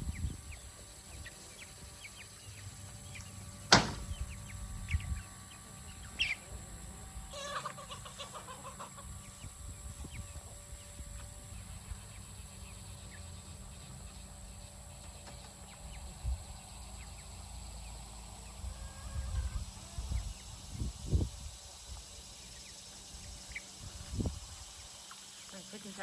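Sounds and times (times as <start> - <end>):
bird calls: 0.0 - 20.8
high insect-like hum: 0.0 - 26.0
chicken calls: 0.1 - 20.8
dull thumps: 3.7 - 4.2.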